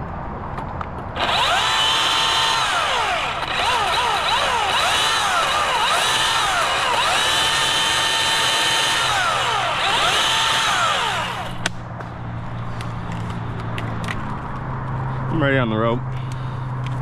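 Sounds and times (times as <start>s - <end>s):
electric chainsaw cutting wood: 1.2s - 11.8s
wood cracking: 1.2s - 11.8s.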